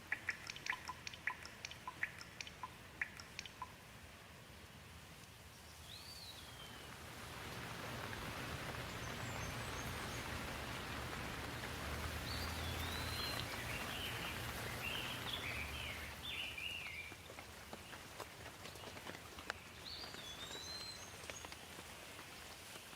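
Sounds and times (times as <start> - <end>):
bird chirping: 0.0 - 3.8, 5.6 - 7.0, 8.1 - 17.2, 19.6 - 21.6
steady rain falling: 0.0 - 22.9.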